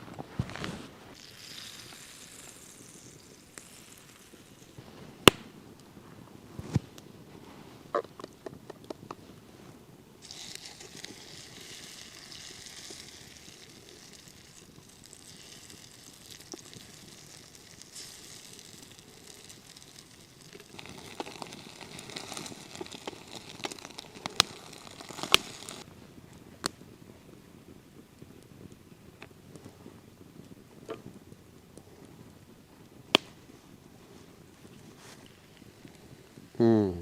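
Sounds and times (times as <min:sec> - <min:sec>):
food sizzling in a frying pan: 0:01.1 - 0:04.8, 0:10.2 - 0:25.9.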